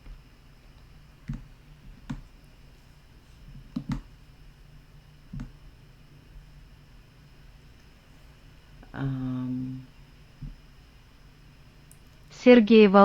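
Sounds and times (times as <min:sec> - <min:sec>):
faint steady hum: 0:00.0 - 0:13.0
computer mouse and key clicks: 0:01.2 - 0:02.3, 0:03.5 - 0:04.1, 0:05.3 - 0:05.6.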